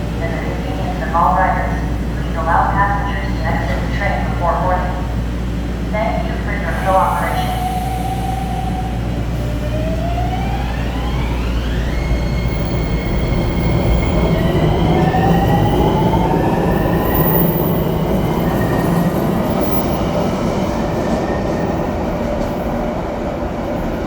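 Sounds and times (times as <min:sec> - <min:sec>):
train rumble: 0:00.0 - 0:24.0
electric traction motors whining: 0:10.4 - 0:17.7.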